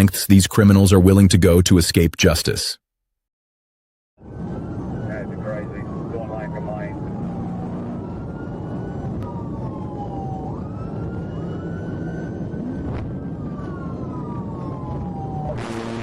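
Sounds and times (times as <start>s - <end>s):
police siren wailing: 4.2s - 16.0s
road and engine noise: 4.2s - 16.0s.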